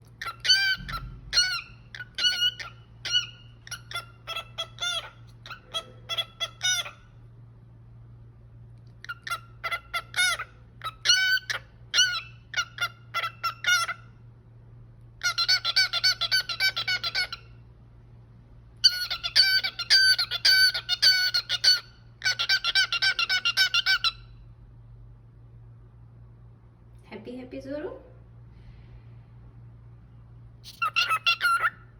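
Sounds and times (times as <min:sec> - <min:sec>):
cockatiel whistling: 0:00.2 - 0:07.0, 0:18.8 - 0:24.3, 0:30.7 - 0:31.8.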